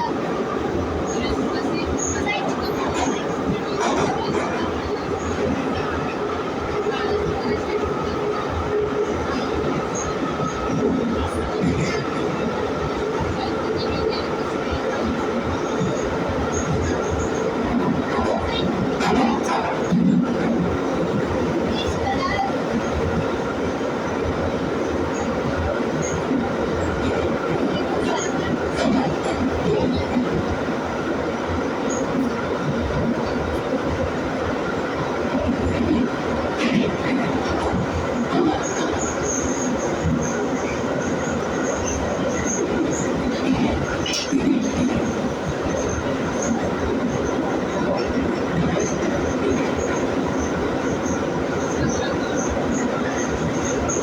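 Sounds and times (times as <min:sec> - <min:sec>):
metro wheels rumbling on rail: 0:00.0 - 0:54.0
wheels clickety-clack: 0:02.1 - 0:05.8, 0:13.2 - 0:22.5, 0:25.1 - 0:30.5, 0:35.3 - 0:54.0.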